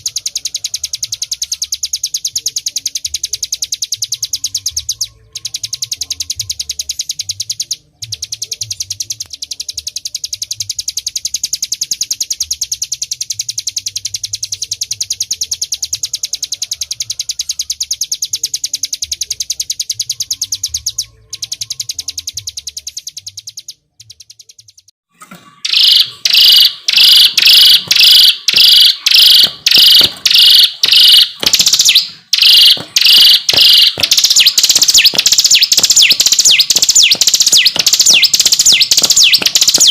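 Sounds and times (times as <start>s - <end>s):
bird trilling: 25.6s - 39.9s.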